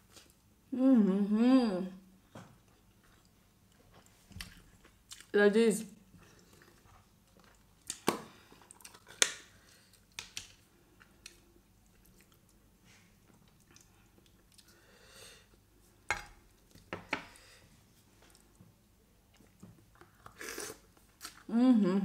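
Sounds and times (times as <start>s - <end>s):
person chewing food: 2.5s - 5.3s, 6.1s - 14.9s, 19.2s - 21.5s.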